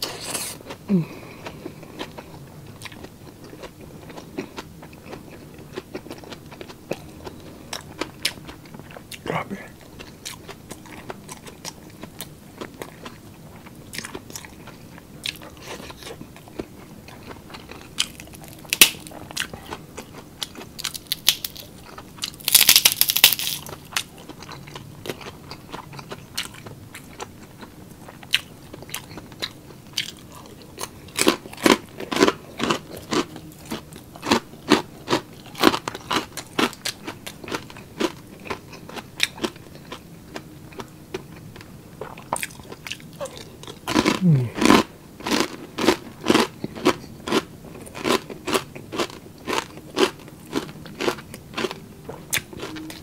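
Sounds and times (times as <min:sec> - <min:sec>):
crunchy chewing: 0:00.0 - 0:53.0
pork rind crackling: 0:17.2 - 0:26.6.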